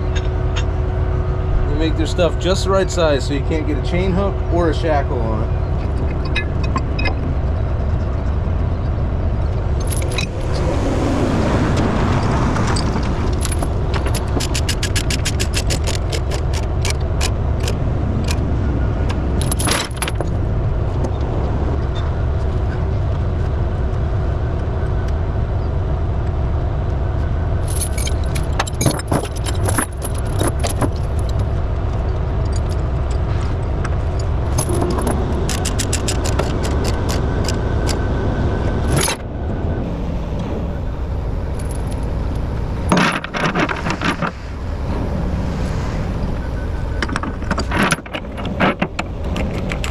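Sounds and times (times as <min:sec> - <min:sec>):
low rumble: 0:00.0 - 0:49.9
metal chain rattling: 0:09.7 - 0:10.6, 0:12.7 - 0:17.7, 0:19.4 - 0:20.4, 0:27.6 - 0:38.0, 0:41.6 - 0:42.1.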